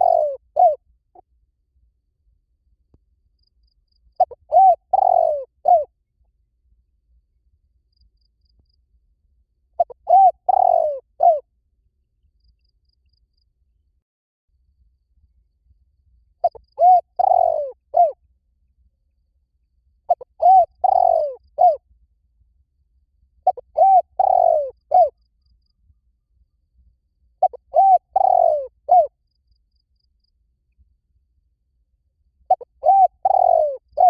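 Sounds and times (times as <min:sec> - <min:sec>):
dove cooing: 0:00.0 - 0:00.8, 0:04.2 - 0:05.9, 0:09.8 - 0:11.4, 0:16.4 - 0:18.2, 0:20.1 - 0:21.8, 0:23.4 - 0:25.2, 0:27.4 - 0:29.1, 0:32.5 - 0:34.0.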